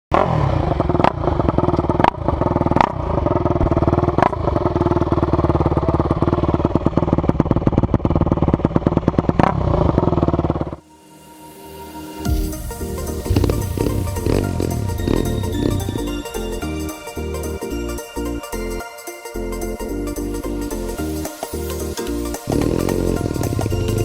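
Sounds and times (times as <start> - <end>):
motorcycle engine running: 0.2 - 10.8, 13.2 - 16.6, 22.2 - 24.0.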